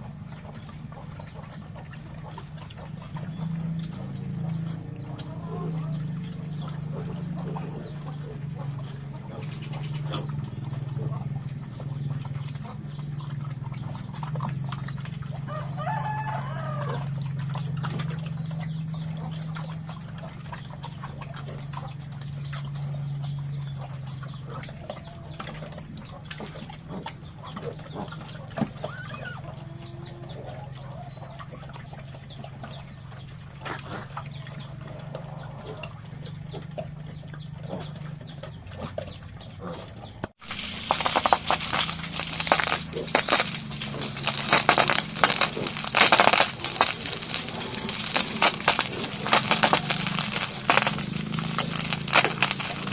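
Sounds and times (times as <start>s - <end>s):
chickens clucking: 0.0s - 52.9s
steady low hum: 0.0s - 52.9s
rooster crowing: 15.5s - 17.2s
scattered clicks: 40.5s - 52.9s.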